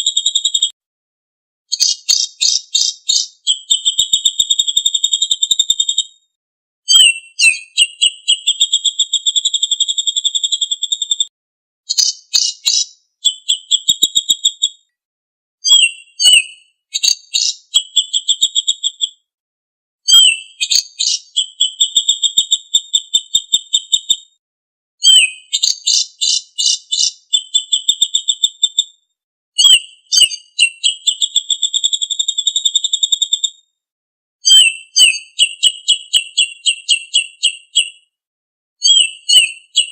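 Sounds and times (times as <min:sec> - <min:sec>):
songbird trilling: 0:01.7 - 0:04.4, 0:11.9 - 0:14.6, 0:15.7 - 0:18.9, 0:20.1 - 0:21.9, 0:25.0 - 0:28.7.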